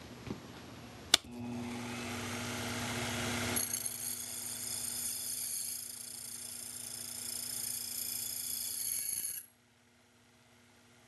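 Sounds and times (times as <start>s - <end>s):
mill motor humming: 1.2s - 5.1s.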